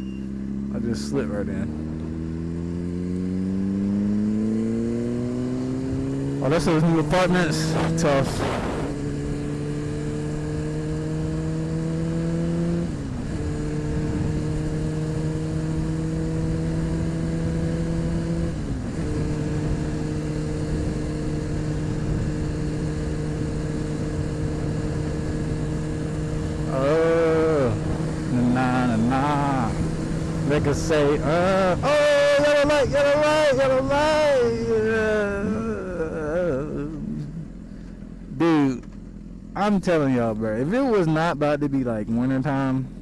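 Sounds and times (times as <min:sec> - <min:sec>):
motorcycle engine accelerating: 0:00.0 - 0:43.0
man speaking: 0:00.8 - 0:01.7, 0:06.4 - 0:08.6, 0:26.7 - 0:37.4, 0:38.3 - 0:38.9, 0:39.6 - 0:42.9.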